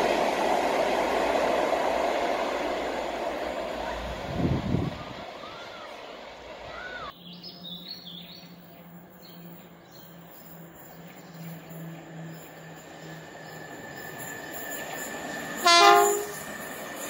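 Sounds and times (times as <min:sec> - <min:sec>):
small birds chirping: 0:07.1 - 0:15.6.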